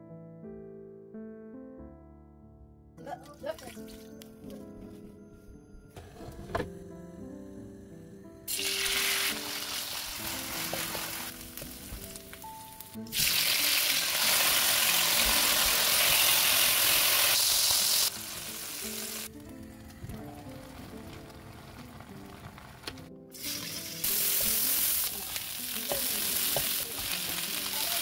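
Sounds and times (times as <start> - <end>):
background music: 0.0 - 28.0
shrimp sizzling in hot oil: 8.5 - 19.3, 22.4 - 28.0.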